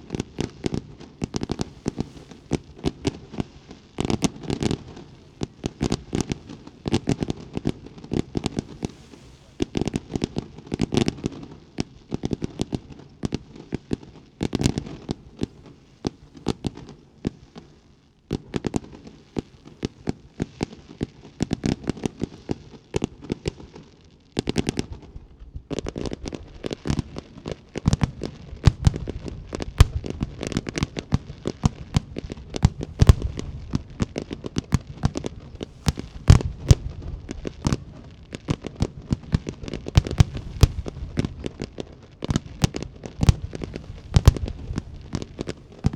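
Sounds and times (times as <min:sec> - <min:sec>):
fireworks crackling and popping: 0:00.0 - 0:45.9
heavy firework booms: 0:28.7 - 0:45.9.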